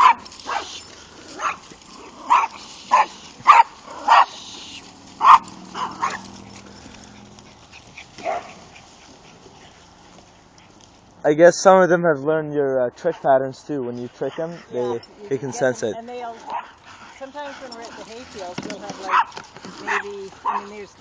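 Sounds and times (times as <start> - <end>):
dog barking: 0.0 - 0.8, 1.4 - 1.6, 2.3 - 4.4, 5.2 - 6.4, 8.2 - 8.6, 14.3 - 15.8, 16.4 - 16.8, 19.0 - 20.8.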